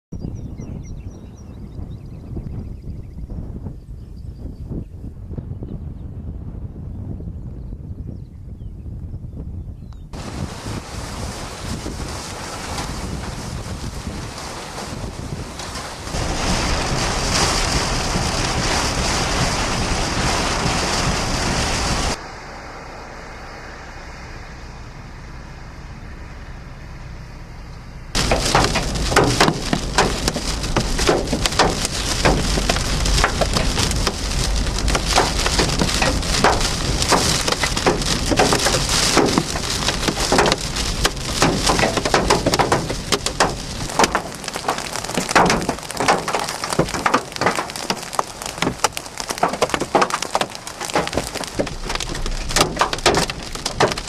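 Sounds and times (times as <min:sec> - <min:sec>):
hailstones striking a vehicle: 0:10.2 - 0:22.2, 0:28.1 - 0:54.0
heavy rain on a vehicle: 0:10.2 - 0:22.2, 0:28.1 - 0:54.0.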